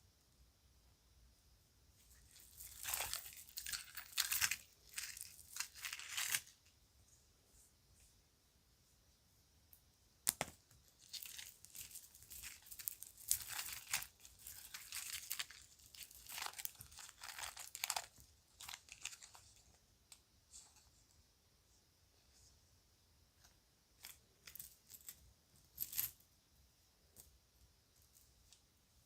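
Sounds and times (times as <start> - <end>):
plastic bag rustling and crackling: 2.2 - 6.6, 11.0 - 19.7.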